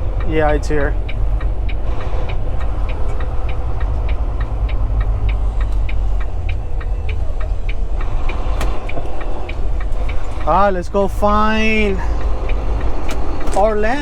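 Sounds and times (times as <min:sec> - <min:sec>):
diesel truck engine rumbling: 0:00.0 - 0:14.0
light even ticking: 0:00.0 - 0:14.0.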